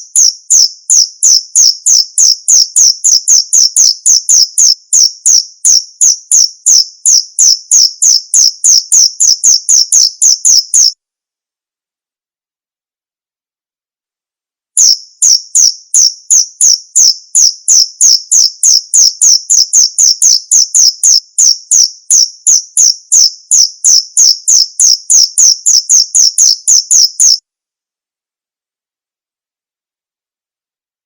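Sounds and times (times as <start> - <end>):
cricket chirping: 0.0 - 11.0, 14.8 - 27.4.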